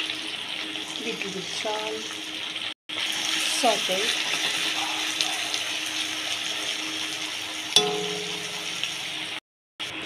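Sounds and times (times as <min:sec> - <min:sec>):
onions sizzling in oil: 0:00.0 - 0:10.0
spatula clinking on wok: 0:07.8 - 0:09.0.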